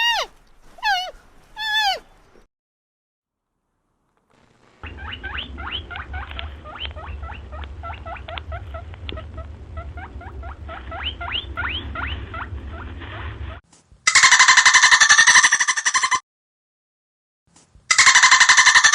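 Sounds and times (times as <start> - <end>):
small animal squeaking: 0.0 - 2.1, 4.8 - 12.8
steady low hum: 3.8 - 13.6.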